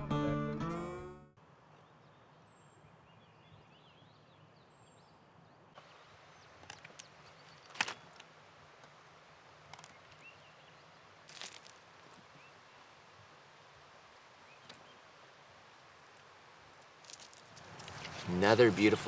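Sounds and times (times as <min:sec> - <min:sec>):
small birds chirping: 0:01.7 - 0:08.2, 0:09.8 - 0:11.0, 0:17.5 - 0:19.0.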